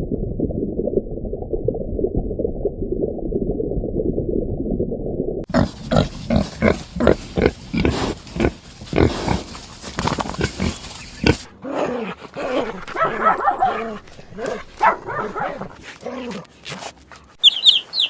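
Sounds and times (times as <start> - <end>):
animal grunting: 5.5 - 16.5.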